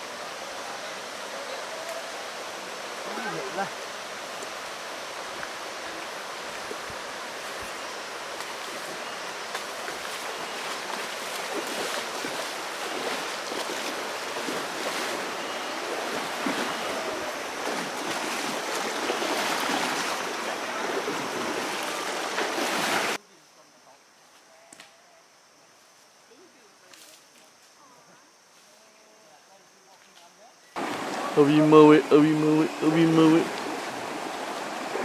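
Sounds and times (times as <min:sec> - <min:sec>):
river water rushing: 0:00.0 - 0:23.2, 0:30.8 - 0:35.0.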